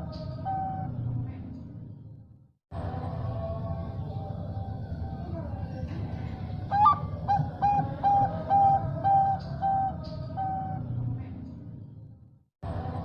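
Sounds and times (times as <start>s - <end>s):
dove cooing: 6.7s - 10.8s.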